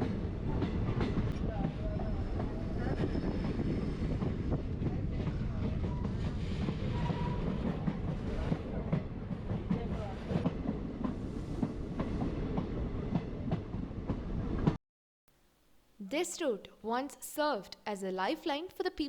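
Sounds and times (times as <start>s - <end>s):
train rumbling on rails: 0.0s - 14.8s.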